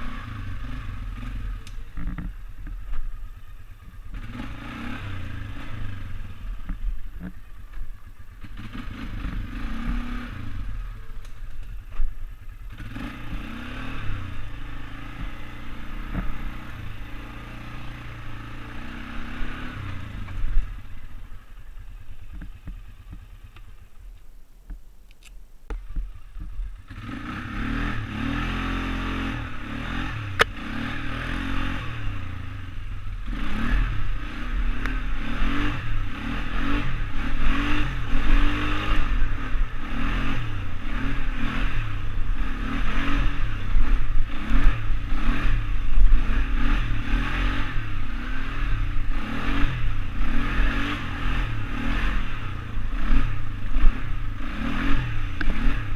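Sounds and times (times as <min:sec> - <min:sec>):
quad bike engine running: 0:00.0 - 0:24.2, 0:25.7 - 0:55.9
sharp click: 0:24.7 - 0:25.9, 0:30.4 - 0:30.6.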